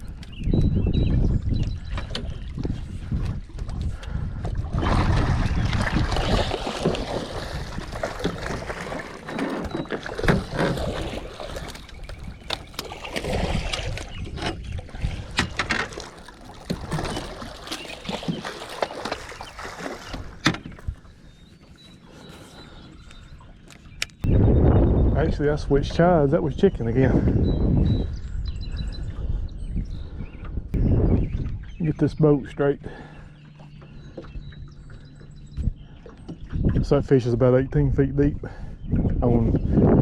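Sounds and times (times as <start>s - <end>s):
wind rumble: 0.0s - 21.2s, 24.2s - 31.8s
water splashing against boat: 0.0s - 24.2s
knocks and clatter on board: 6.2s - 14.6s, 15.3s - 20.9s.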